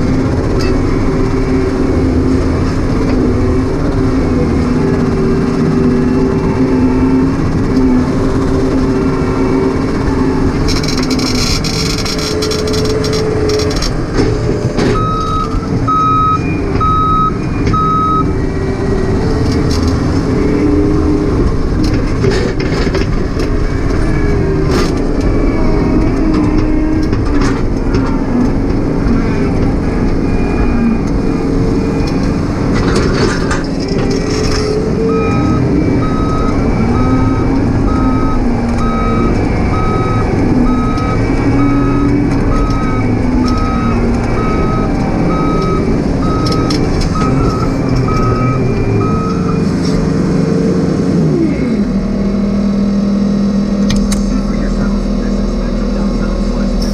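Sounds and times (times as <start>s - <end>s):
excavator diesel engine working: 0.0s - 56.9s
travel alarm beeping: 14.9s - 18.4s, 30.0s - 49.8s.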